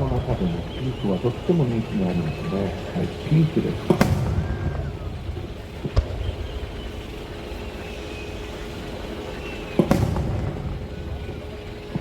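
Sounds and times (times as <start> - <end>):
steady low rumble: 0.0 - 12.0
firework bang: 3.9 - 12.0
faint high whistle: 7.6 - 10.1.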